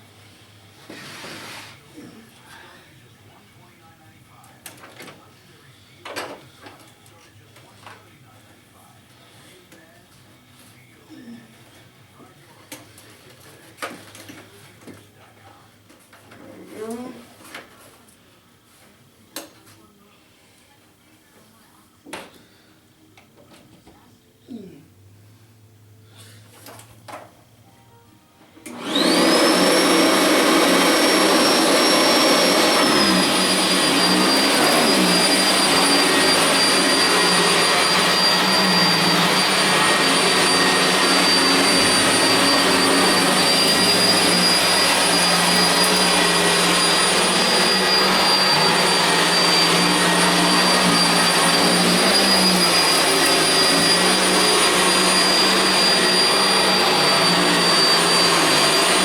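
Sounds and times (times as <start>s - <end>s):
vacuum cleaner motor whine: 28.5s - 59.0s.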